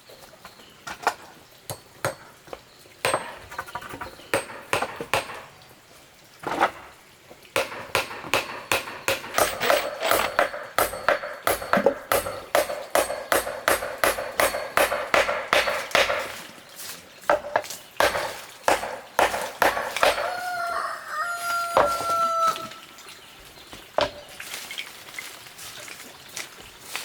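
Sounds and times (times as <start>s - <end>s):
rapid knocking: 7.6s - 16.4s, 17.3s - 20.3s
rooster crowing: 20.0s - 22.9s.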